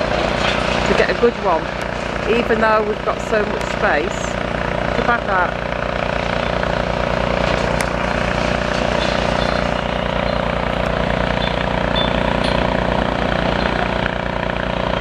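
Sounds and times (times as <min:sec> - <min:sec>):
excavator diesel engine running: 0:00.0 - 0:15.0
high metallic clicks and squeaks: 0:08.8 - 0:12.8.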